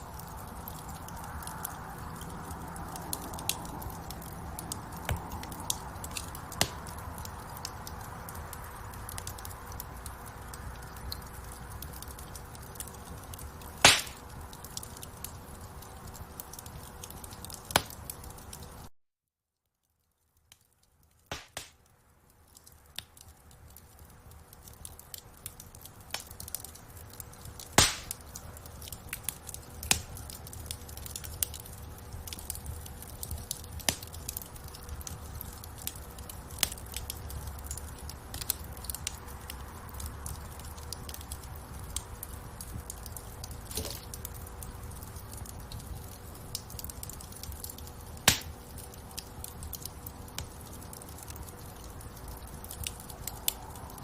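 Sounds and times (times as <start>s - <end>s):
wood fire crackling: 0.0s - 18.9s, 19.8s - 54.0s
loud sharp fire pops: 5.0s - 7.6s, 13.7s - 14.6s, 17.4s - 18.1s, 21.3s - 21.8s, 27.5s - 28.4s, 29.1s - 31.8s, 33.2s - 35.9s, 48.2s - 48.6s.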